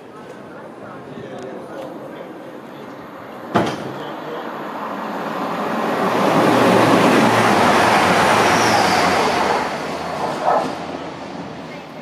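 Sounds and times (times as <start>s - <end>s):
train passing at speed: 0.0s - 12.0s.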